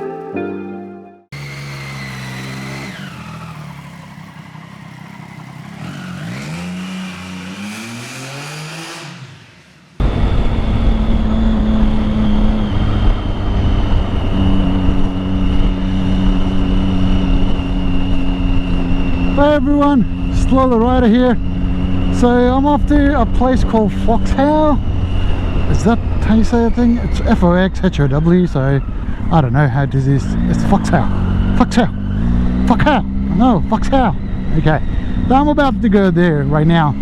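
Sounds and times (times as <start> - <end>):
motorcycle engine revving: 1.3 - 37.0
wind rush: 10.0 - 29.4.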